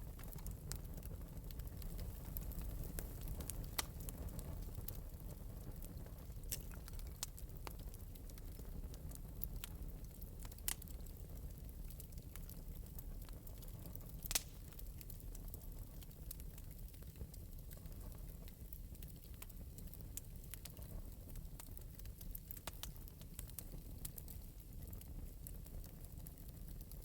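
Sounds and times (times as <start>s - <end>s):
fire crackling softly: 0.0s - 27.0s
sharp pops of fire: 0.1s - 5.2s, 5.8s - 9.0s, 13.4s - 15.6s.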